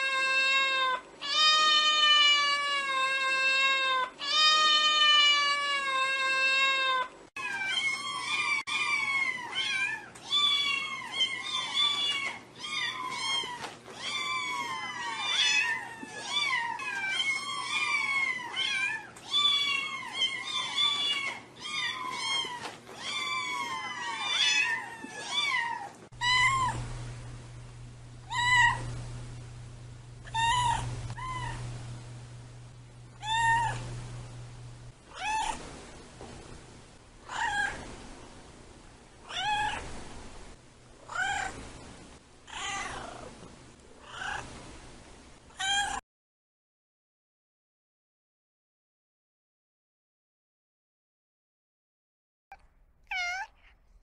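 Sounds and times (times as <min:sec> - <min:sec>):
cats meowing: 0:00.0 - 0:26.8, 0:28.2 - 0:29.0, 0:30.2 - 0:31.7, 0:33.2 - 0:34.0, 0:35.1 - 0:35.6, 0:37.2 - 0:37.9, 0:39.2 - 0:39.9, 0:41.0 - 0:41.6, 0:42.5 - 0:43.4, 0:44.0 - 0:44.5, 0:45.5 - 0:46.0, 0:52.5 - 0:53.8
steady low hum: 0:26.1 - 0:45.6.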